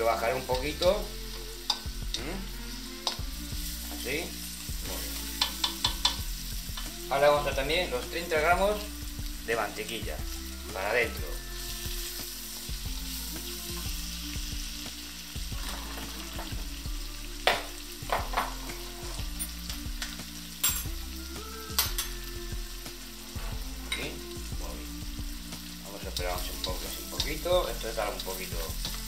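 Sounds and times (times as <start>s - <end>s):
onion and garlic sizzling in oil: 0.0s - 29.0s
spatula scraping and tapping pan: 5.2s - 6.2s.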